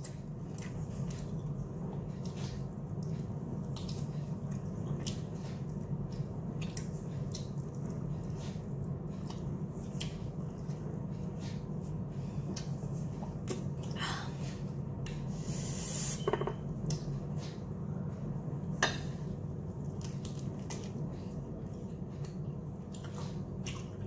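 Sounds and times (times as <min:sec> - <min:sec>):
steady low hum: 0:00.0 - 0:24.0
chewing with wet mouth clicks: 0:02.2 - 0:10.8, 0:19.8 - 0:24.0.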